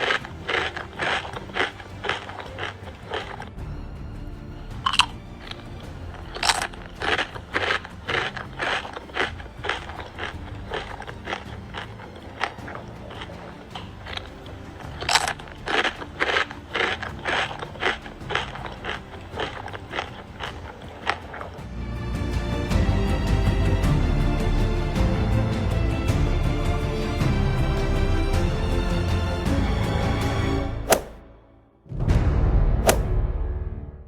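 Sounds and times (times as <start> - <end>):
bird crunching fruit: 0.0 - 3.6, 4.9 - 21.6.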